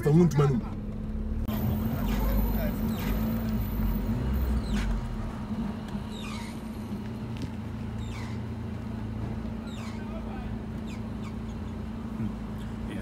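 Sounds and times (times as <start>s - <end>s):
vehicle engine humming: 0.0s - 13.0s
short high squeaks: 6.1s - 6.7s.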